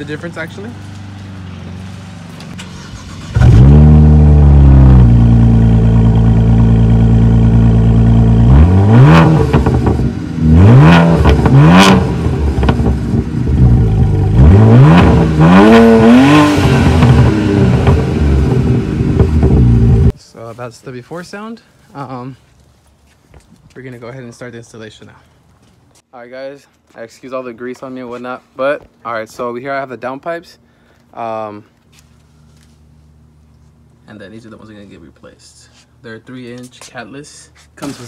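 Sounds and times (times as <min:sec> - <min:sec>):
car engine idling: 0:00.0 - 0:08.6, 0:09.4 - 0:20.1
car engine starting: 0:00.0 - 0:20.2
car engine revving: 0:01.3 - 0:20.1.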